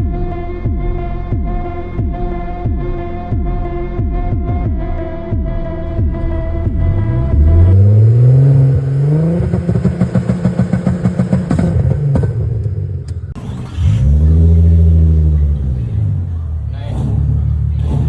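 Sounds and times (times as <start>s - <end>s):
car engine revving hard: 5.9s - 18.0s.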